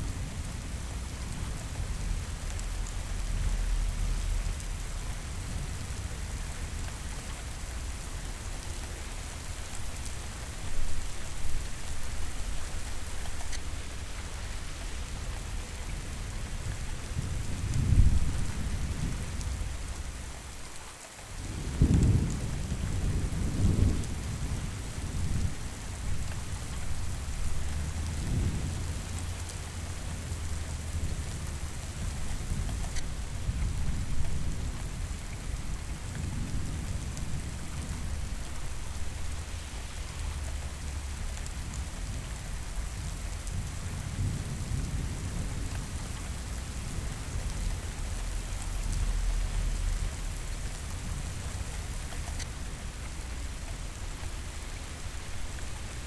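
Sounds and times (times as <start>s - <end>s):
steady rain: 0.0s - 56.0s
rolling thunder: 17.1s - 19.3s, 21.5s - 25.6s.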